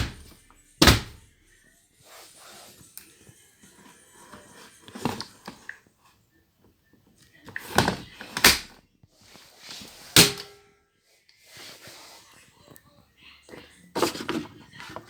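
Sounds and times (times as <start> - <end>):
appliance door knocks and clunks: 0.0 - 1.2.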